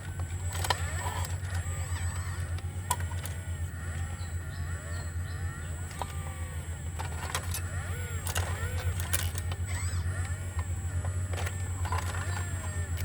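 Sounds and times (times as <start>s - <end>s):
excavator diesel engine running: 0.0s - 13.0s
hydraulic whines: 0.0s - 13.0s.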